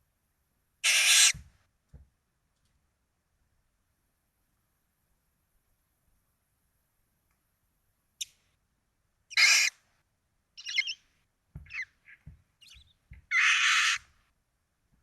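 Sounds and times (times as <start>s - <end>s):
owl hissing screech calls: 0.8s - 1.4s, 9.3s - 9.8s, 10.6s - 11.0s, 11.7s - 14.1s
raspy calls: 0.8s - 1.4s, 9.3s - 9.8s, 10.6s - 11.0s, 11.6s - 14.1s
faint chirps: 10.6s - 14.0s.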